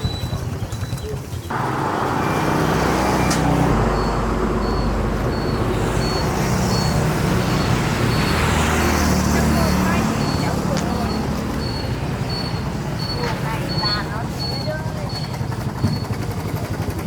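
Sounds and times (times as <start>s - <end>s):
vehicle engine and road rumble: 0.0s - 17.0s
faint high beeps: 3.2s - 8.6s, 9.6s - 16.2s.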